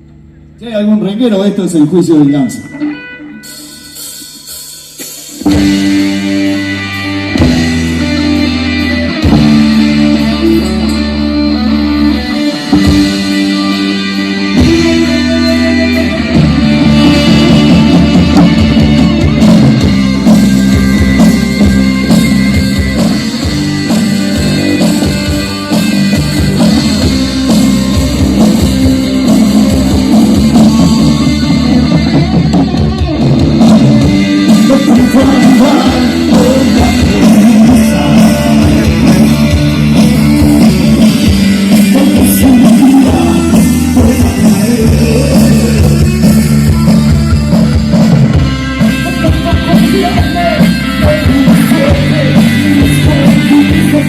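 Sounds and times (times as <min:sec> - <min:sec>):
bass: 0:00.0 - 0:54.0
drums: 0:00.0 - 0:54.0
electric guitars: 0:00.0 - 0:54.0
person singing: 0:29.4 - 0:33.3, 0:34.0 - 0:54.0.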